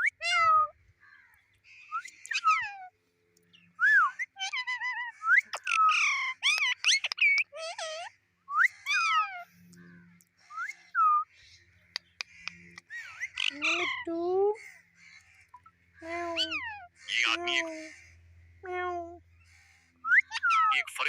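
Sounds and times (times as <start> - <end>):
parrot whistling and chirping: 0.0 - 0.7, 3.8 - 9.4, 20.0 - 20.8.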